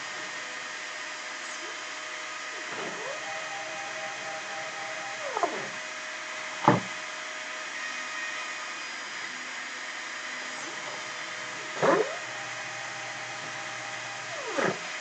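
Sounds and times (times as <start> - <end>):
spindle motor running: 2.4 - 7.0, 10.2 - 15.0
stepper motor whine sweeping in pitch: 2.7 - 7.0, 10.4 - 15.0.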